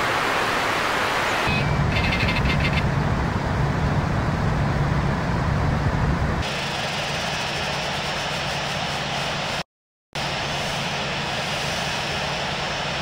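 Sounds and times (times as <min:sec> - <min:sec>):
jet airliner engine rumble: 0:10.2 - 0:13.0.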